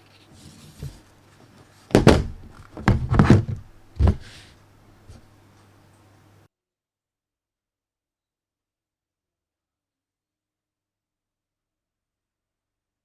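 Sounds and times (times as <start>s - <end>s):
low electrical hum: 0.0s - 6.5s
packaging knocks and thumps: 1.9s - 4.5s.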